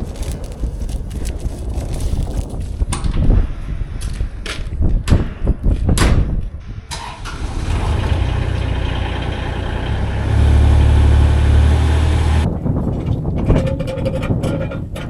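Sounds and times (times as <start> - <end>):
vehicle engine starting and running: 6.9 - 12.5.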